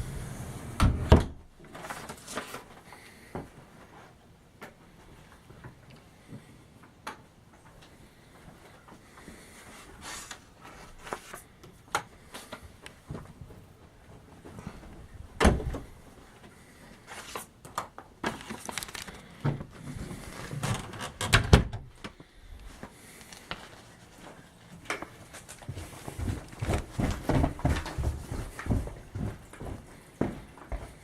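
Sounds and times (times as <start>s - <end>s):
knocks and thumps in a house: 12.0s - 16.6s, 25.0s - 31.0s.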